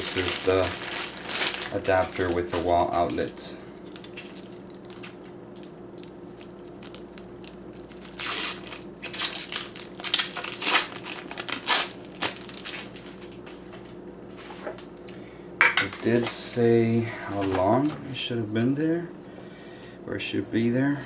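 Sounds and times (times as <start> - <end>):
packaging crinkling and crackling: 0.0 - 13.9.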